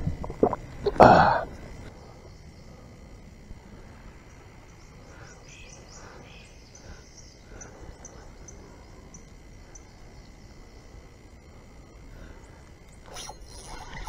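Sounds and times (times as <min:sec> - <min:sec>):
steady low background noise: 0:00.0 - 0:14.0
birds singing high chirps: 0:04.0 - 0:11.4.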